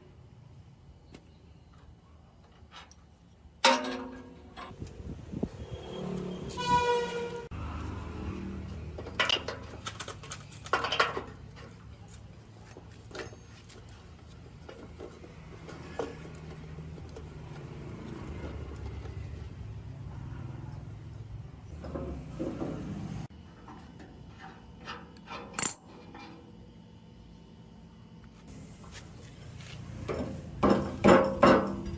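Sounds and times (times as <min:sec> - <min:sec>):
metal parts clinking: 0:25.4 - 0:25.9.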